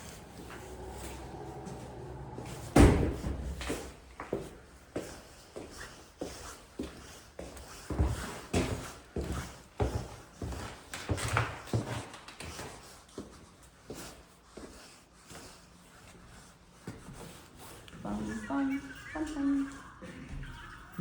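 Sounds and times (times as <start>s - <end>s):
footsteps thumping: 0.2s - 5.1s.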